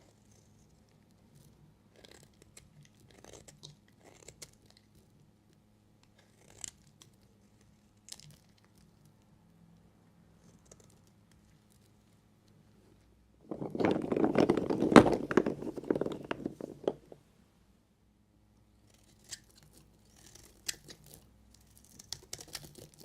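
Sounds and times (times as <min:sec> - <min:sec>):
knife cutting soap: 0:18.9 - 0:23.0.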